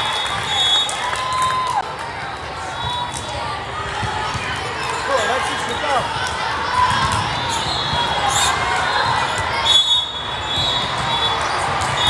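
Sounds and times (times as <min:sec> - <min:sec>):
crowd chatter echoing: 0:00.0 - 0:12.0
volleyballs bouncing on gym floor: 0:01.8 - 0:09.6.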